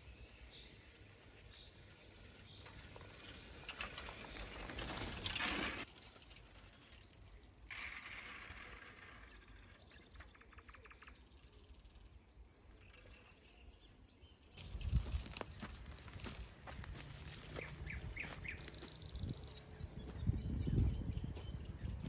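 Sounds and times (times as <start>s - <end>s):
bird chirps: 8.9s - 22.0s.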